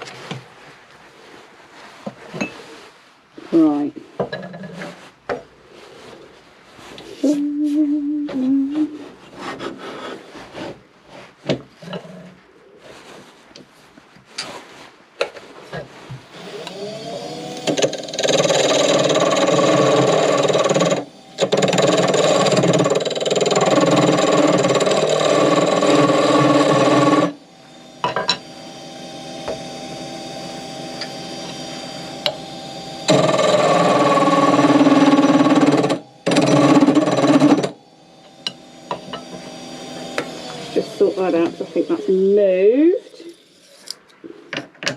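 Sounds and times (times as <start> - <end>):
turning tool cutting wood: 16.2 - 44.0
wood lathe spinning: 16.2 - 44.0.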